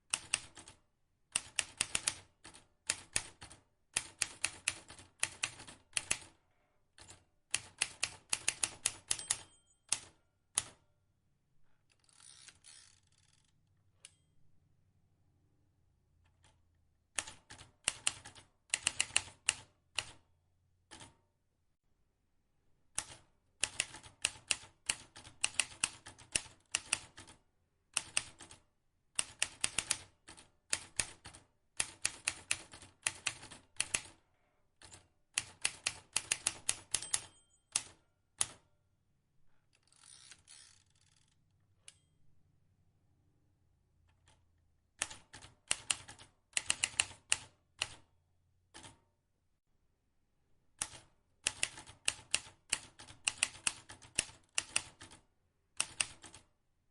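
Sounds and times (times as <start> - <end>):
typewriter keys clicking: 23.0 - 27.3, 30.8 - 34.1, 34.8 - 38.6, 45.0 - 48.0, 50.8 - 55.2, 55.8 - 56.4.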